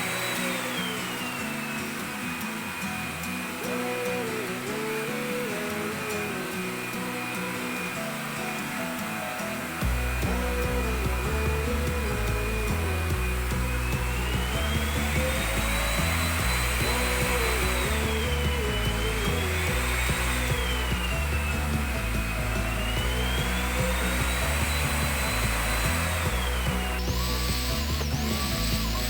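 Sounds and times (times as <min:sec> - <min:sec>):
vacuum cleaner motor whine: 0:00.0 - 0:29.0
background music with bass line: 0:09.8 - 0:29.0.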